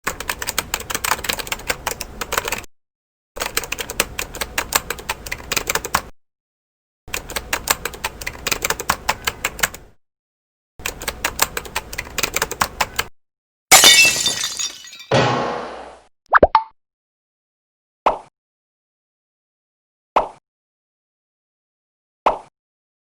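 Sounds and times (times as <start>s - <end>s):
rapid keyboard key clicks: 3.4s - 6.1s, 7.1s - 9.8s.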